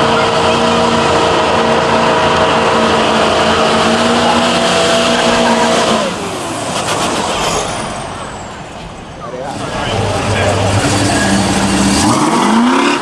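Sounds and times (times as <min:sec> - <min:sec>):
car engine at high revs: 0:00.0 - 0:13.0
tyres screeching: 0:00.0 - 0:13.0.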